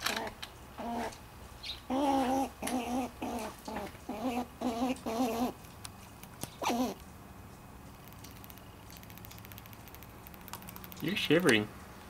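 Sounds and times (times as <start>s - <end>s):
squirrel moaning calls: 0.8s - 5.7s, 6.6s - 7.0s.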